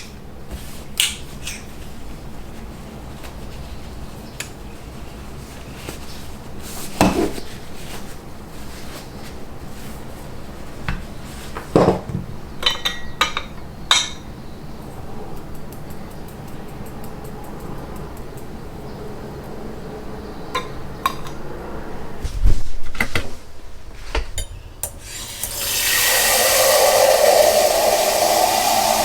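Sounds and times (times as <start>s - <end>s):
dull knocks of dishes: 11.7s - 13.2s.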